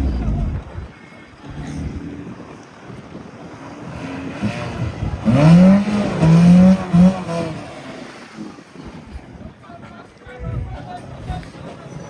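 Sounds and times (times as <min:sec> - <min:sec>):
car engine revving hard: 0:00.0 - 0:09.6.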